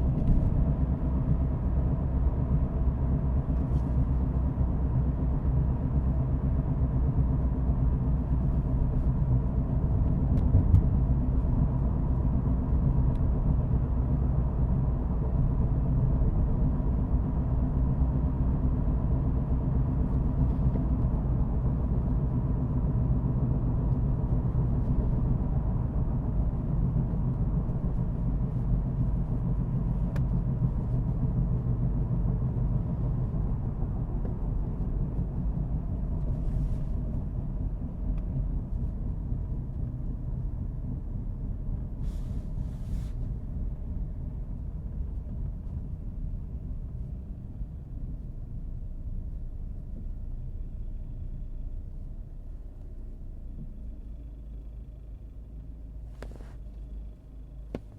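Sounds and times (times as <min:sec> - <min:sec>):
car engine and road noise: 0:00.0 - 0:57.9.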